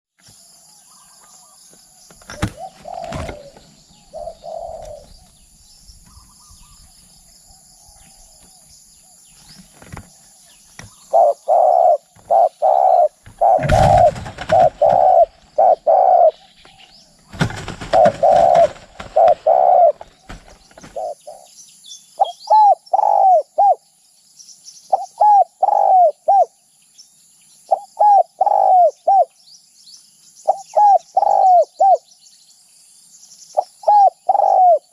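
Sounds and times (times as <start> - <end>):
dove cooing: 2.2 - 6.9, 10.8 - 21.5, 22.2 - 23.8, 24.9 - 26.5, 27.7 - 29.3, 30.5 - 32.0, 33.6 - 34.9
loud rustling: 13.2 - 15.3, 17.3 - 21.0.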